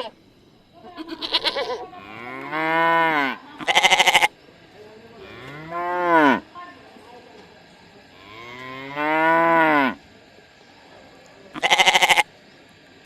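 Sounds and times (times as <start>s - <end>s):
sheep bleating: 0.8s - 4.4s, 11.6s - 12.3s
cow mooing: 1.1s - 4.3s, 5.2s - 6.4s, 8.2s - 10.0s.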